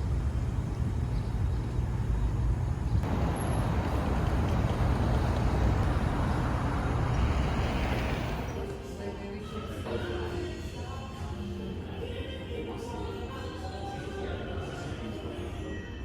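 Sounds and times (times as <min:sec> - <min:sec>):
traffic rumble: 0:00.0 - 0:08.8.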